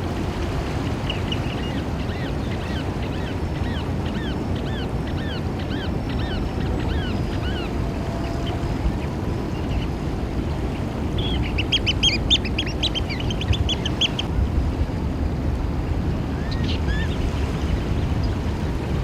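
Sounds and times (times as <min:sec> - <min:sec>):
shrill piping bird calls: 0:00.9 - 0:14.3.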